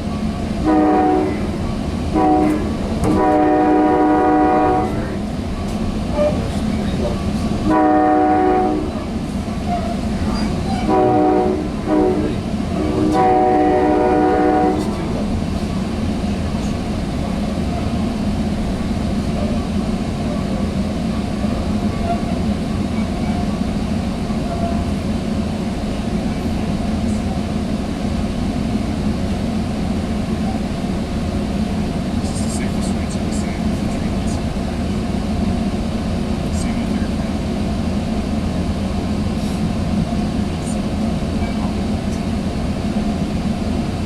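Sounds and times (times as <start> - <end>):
train rumbling on rails: 0.0 - 44.0
train horn blasts: 0.6 - 5.2, 7.6 - 15.2, 24.5 - 25.0.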